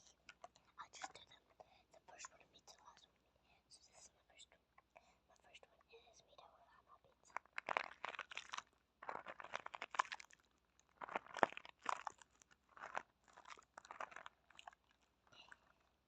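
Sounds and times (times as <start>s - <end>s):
crinkly crunching and crackling: 7.2s - 16.0s.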